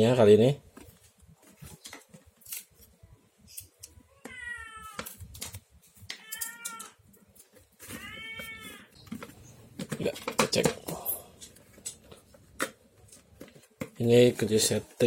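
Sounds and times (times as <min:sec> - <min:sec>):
cat meowing: 0:03.9 - 0:05.2, 0:06.1 - 0:07.0, 0:07.8 - 0:09.0.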